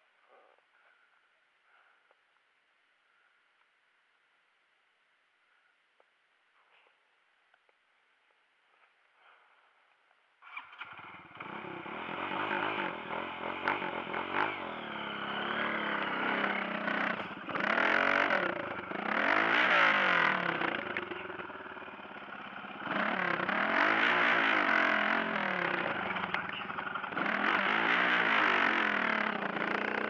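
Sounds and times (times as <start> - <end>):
motorcycle engine revving: 10.5 - 30.0.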